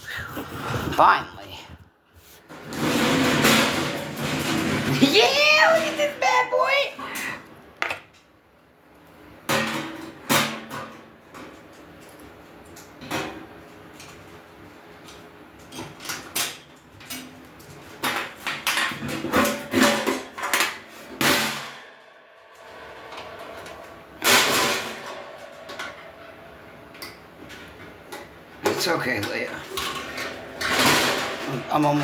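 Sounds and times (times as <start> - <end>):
metal scrape: 19.8 - 28.1, 29.6 - 32.0
metal grill parts clattering: 22.6 - 32.0.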